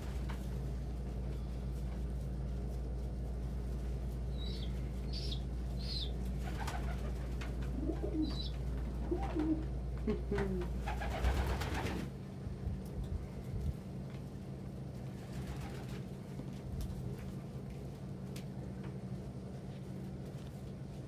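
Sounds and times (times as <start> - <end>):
steady low hum: 0.0 - 21.0
pigeons cooing: 4.4 - 12.0.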